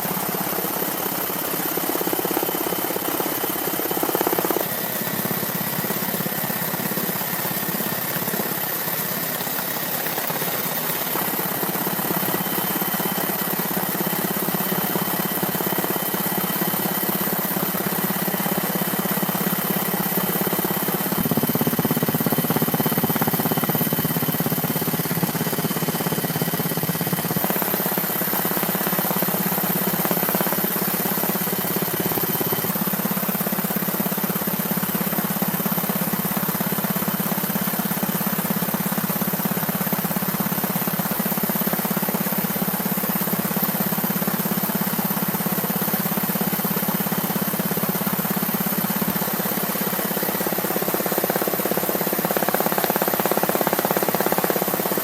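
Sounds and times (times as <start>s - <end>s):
mechanical engine drone: 0.0s - 33.5s.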